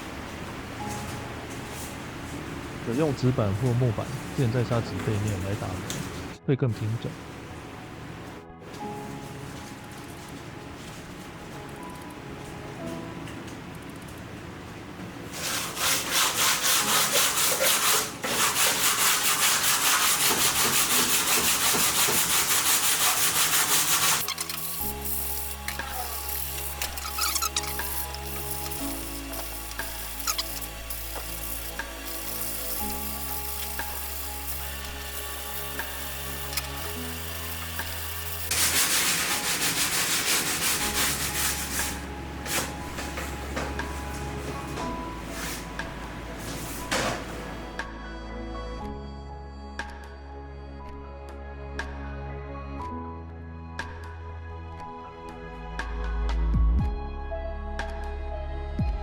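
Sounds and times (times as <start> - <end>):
background music: 0.0 - 14.6, 15.3 - 59.0
hand sanding strokes: 15.3 - 47.8.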